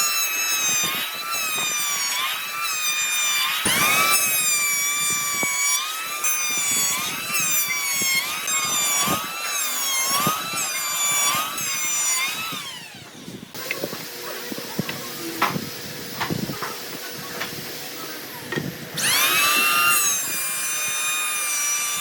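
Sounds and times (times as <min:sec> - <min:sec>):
power tool motor whining: 0:00.0 - 0:22.0.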